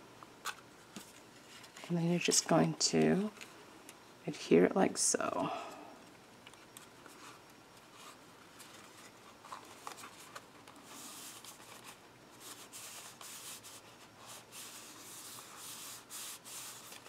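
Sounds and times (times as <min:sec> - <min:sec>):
cardstock rubbing and rustling: 0:06.6 - 0:17.0.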